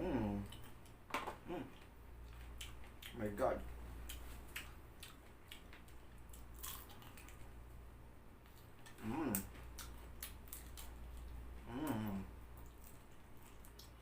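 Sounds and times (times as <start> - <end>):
person humming: 0.0 - 0.6, 1.4 - 1.8, 9.0 - 9.5, 11.6 - 12.3
close-up chewing: 4.0 - 7.5, 8.4 - 14.0.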